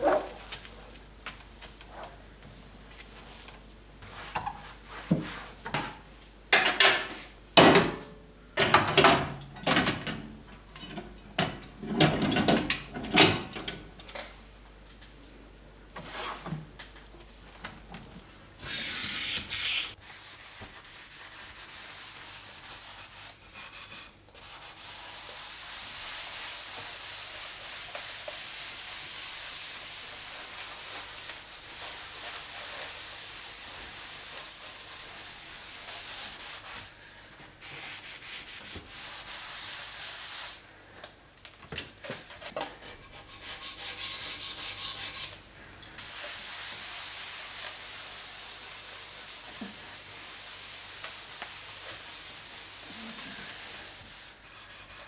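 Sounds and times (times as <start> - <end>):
surface being scrubbed by hand: 18.7 - 37.0, 37.6 - 40.6, 46.0 - 55.0.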